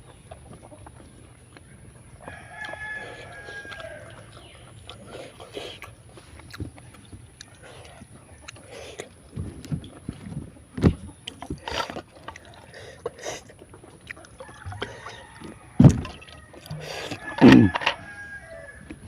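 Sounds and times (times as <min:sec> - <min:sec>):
wet chewing and slurping: 0:00.0 - 0:18.2
rooster crowing: 0:02.2 - 0:04.3, 0:14.4 - 0:19.0.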